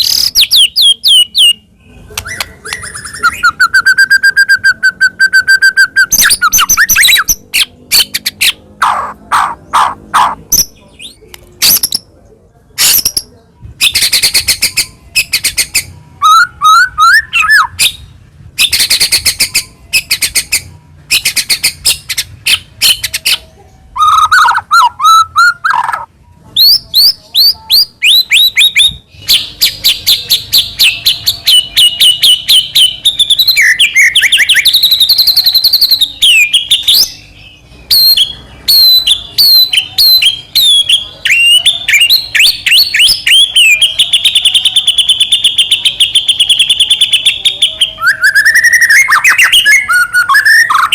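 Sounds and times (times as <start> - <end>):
songbird singing chirps and trills: 0.0 - 50.9.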